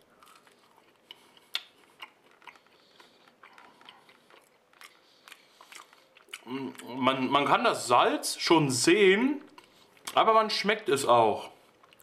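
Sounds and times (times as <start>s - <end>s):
chewing a french fry: 0.0s - 7.0s, 11.4s - 12.0s.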